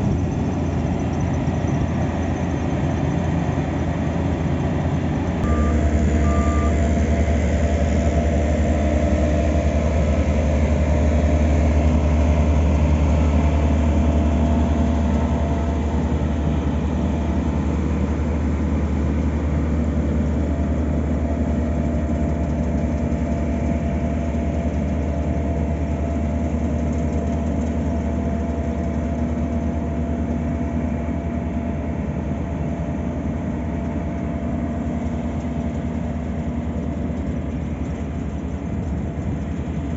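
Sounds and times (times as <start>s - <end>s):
diesel paving machinery humming: 0.0s - 39.9s
reversing beep: 5.4s - 7.3s.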